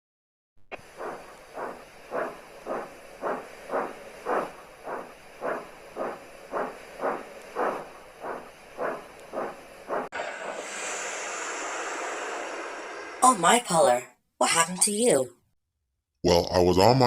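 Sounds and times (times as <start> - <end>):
steam locomotive chuffing: 0.8 - 14.0.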